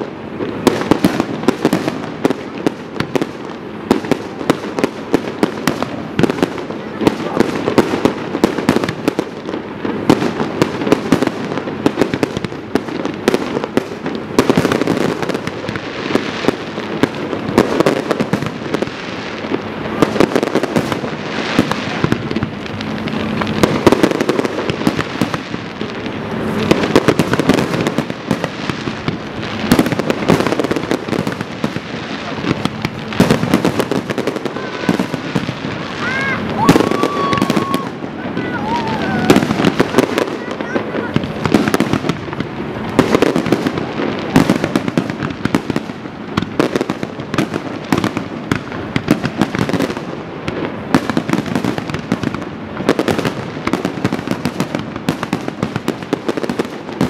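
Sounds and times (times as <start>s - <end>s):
firework shells bursting: 0.0s - 57.0s.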